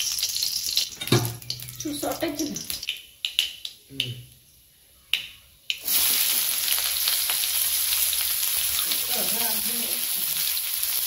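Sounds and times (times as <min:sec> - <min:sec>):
food sizzling in hot oil: 0:00.0 - 0:03.7, 0:05.7 - 0:11.0.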